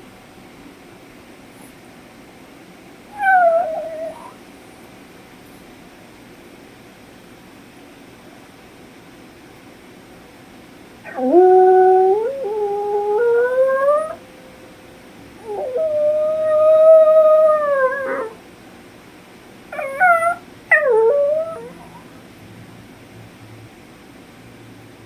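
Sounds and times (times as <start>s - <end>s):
puppy howling: 3.1s - 4.4s, 11.0s - 14.3s, 15.4s - 18.4s, 19.7s - 22.1s.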